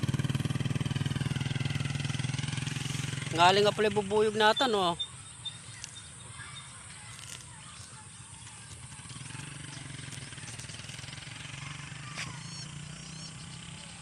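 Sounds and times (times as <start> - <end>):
faint engine hum: 0.0 - 14.0
bird chirps: 3.4 - 14.0.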